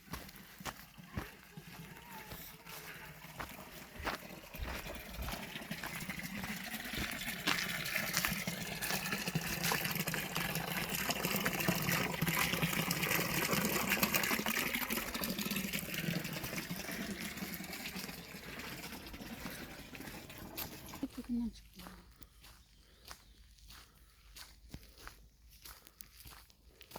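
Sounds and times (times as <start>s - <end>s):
water splashing and gushing: 0.0s - 21.3s.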